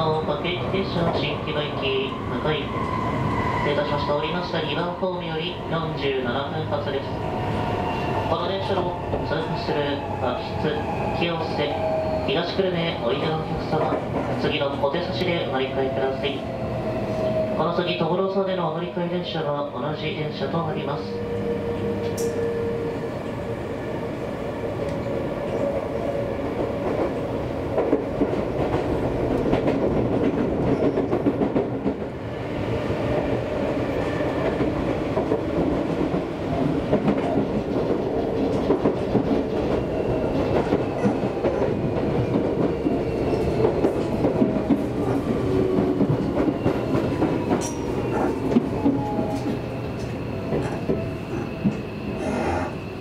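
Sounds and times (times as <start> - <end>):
train rumble: 0.0 - 53.0
train wheels clacking: 26.4 - 32.1, 33.1 - 52.7.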